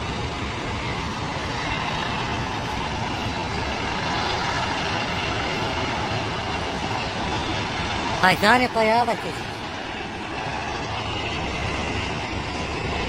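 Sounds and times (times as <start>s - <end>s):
waterfall roaring: 8.2s - 9.6s.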